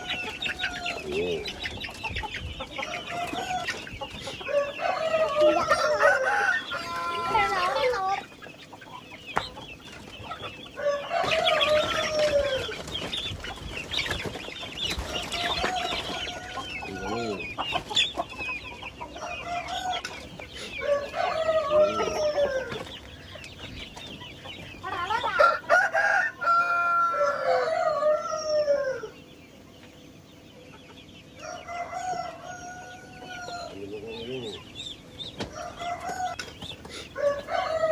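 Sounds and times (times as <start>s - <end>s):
roosters crowing: 0.0s - 8.3s, 9.0s - 29.6s, 30.8s - 37.9s
chickens clucking: 0.0s - 37.9s.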